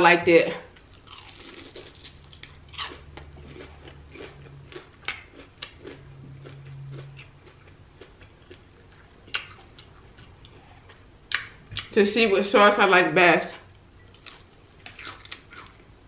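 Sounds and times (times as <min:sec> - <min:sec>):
crunchy chewing: 0:00.8 - 0:12.0, 0:14.1 - 0:15.9
closed-mouth humming: 0:02.1 - 0:12.0.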